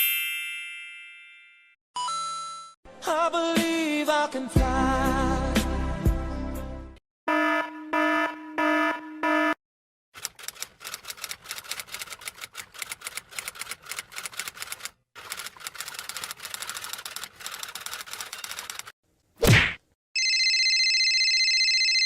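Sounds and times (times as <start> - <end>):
rapid uneven clicking: 10.2 - 18.9.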